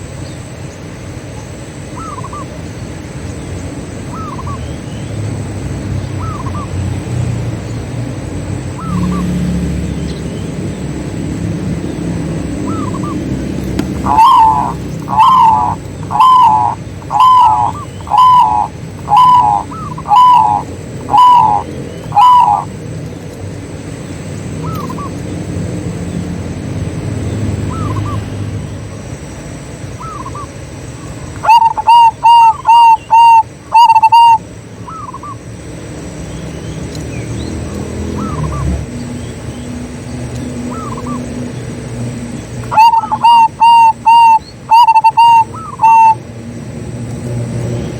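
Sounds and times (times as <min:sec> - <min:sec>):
low background rumble: 0:00.0 - 0:47.9
doves cooing: 0:04.1 - 0:04.8, 0:08.6 - 0:25.6, 0:30.0 - 0:35.6, 0:37.1 - 0:46.5.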